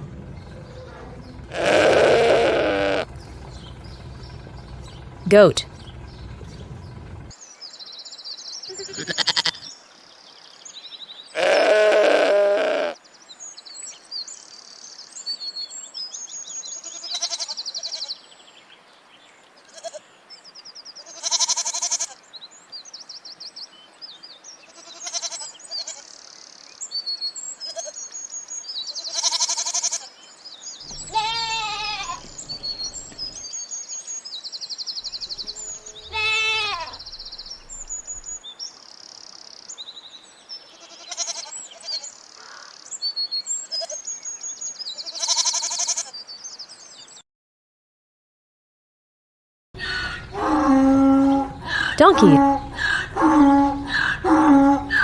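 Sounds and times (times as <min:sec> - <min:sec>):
goats bleating: 0:00.0 - 0:07.3, 0:08.8 - 0:09.6, 0:11.4 - 0:13.0, 0:30.9 - 0:33.4, 0:35.2 - 0:37.9, 0:49.8 - 0:55.0
high chirping: 0:30.9 - 0:33.4, 0:49.8 - 0:55.0.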